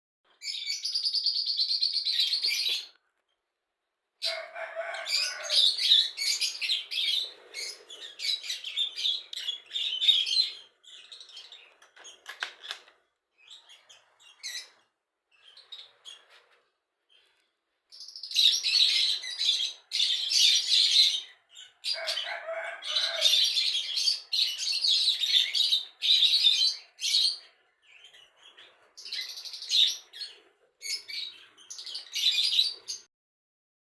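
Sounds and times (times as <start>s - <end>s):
lovebirds chattering: 4.2s - 16.4s.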